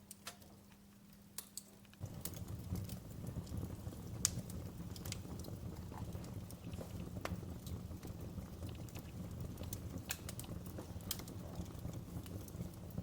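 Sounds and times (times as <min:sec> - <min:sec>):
wood fire crackling and popping: 0:00.0 - 0:13.0
rumble of burning flames: 0:00.1 - 0:13.0.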